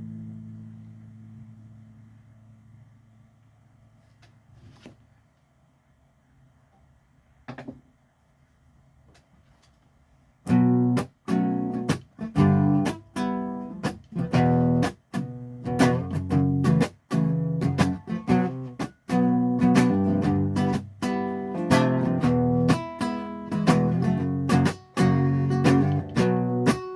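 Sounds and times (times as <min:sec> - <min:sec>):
acoustic guitar strumming chords: 0:10.5 - 0:26.9.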